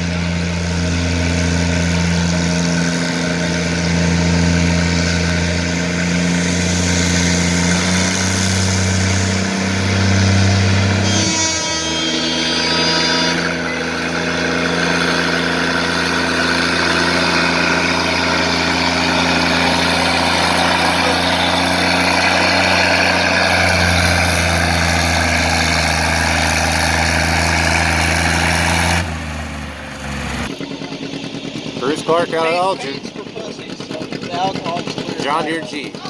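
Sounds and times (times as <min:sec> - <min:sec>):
tractor engine running under load: 0:00.0 - 0:36.0.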